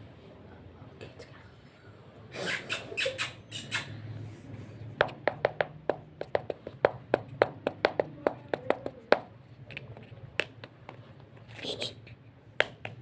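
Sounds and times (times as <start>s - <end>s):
rapid sharp taps: 5.0s - 9.4s.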